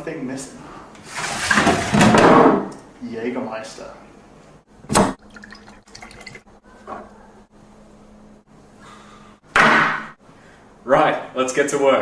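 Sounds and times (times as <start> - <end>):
liquid pouring from bottle: 5.2 - 6.5
sharp knock: 9.5 - 10.1.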